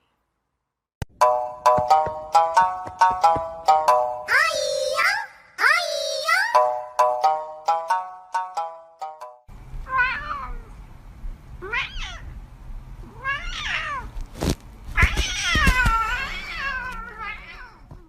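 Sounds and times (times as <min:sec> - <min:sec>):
cat meowing: 0:09.9 - 0:10.7, 0:11.6 - 0:12.4, 0:13.0 - 0:14.2, 0:14.9 - 0:18.0.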